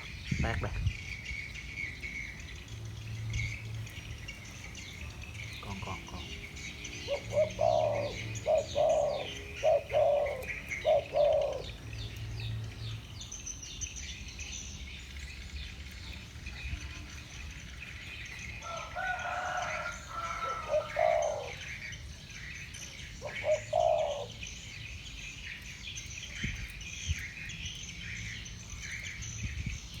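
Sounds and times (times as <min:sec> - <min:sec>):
doves cooing: 0:03.4 - 0:13.1, 0:18.6 - 0:22.1, 0:23.0 - 0:24.8.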